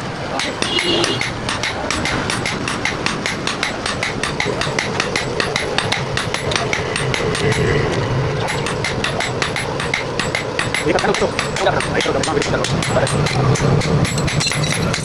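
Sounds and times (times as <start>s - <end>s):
hammer blows on steel: 0.3s - 15.0s.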